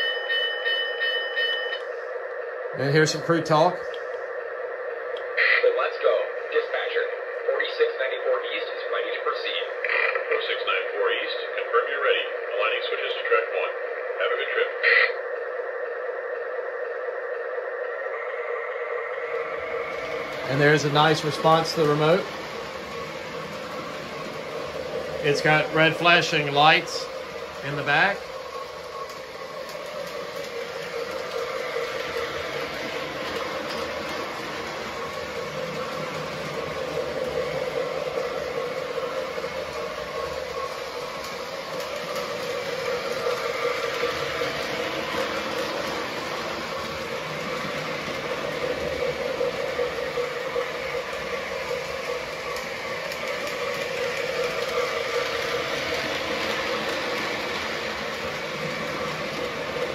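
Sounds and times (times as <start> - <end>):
model train rumbling on track: 18.2 - 59.9.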